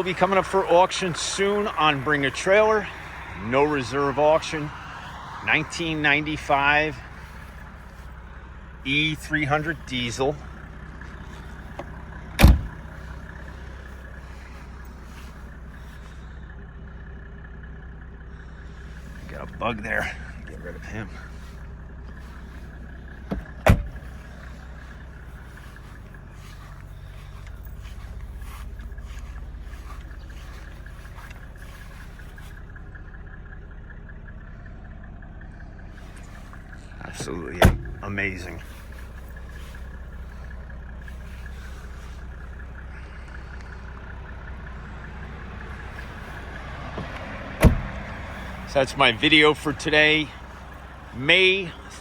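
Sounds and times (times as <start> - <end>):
diesel engine idling: 0.0 - 52.0
loud thump: 12.4 - 12.8, 23.3 - 24.0.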